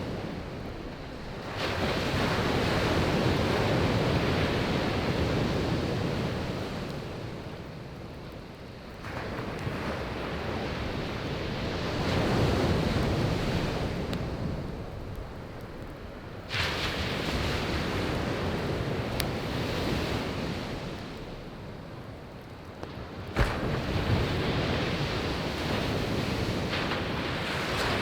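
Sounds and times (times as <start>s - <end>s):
firewood crackling: 0.0s - 19.9s
sea waves breaking on beach: 0.0s - 21.8s, 22.9s - 28.0s.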